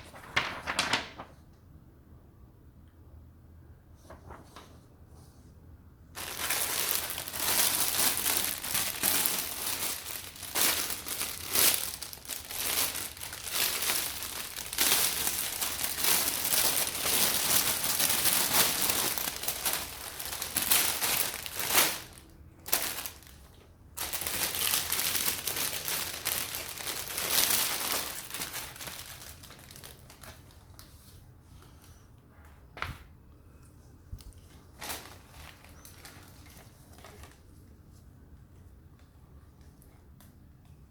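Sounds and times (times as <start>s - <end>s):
packaging crinkling and rustling: 0.0s - 1.3s, 6.2s - 31.2s, 34.2s - 37.8s.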